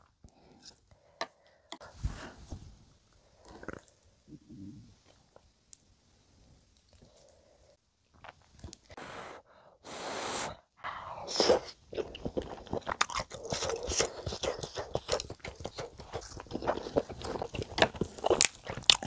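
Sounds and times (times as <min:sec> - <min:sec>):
person slurping food: 0:09.0 - 0:18.7
wet chewing with crunches: 0:11.9 - 0:19.0.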